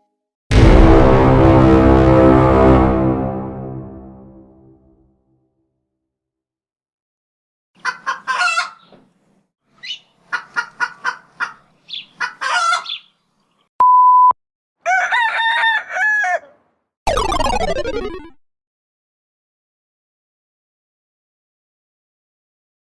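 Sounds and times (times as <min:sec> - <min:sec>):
pitched call in arching notes: 0:00.5 - 0:04.2
chicken clucking: 0:07.8 - 0:09.0, 0:09.8 - 0:13.1
censor beep: 0:13.8 - 0:14.4.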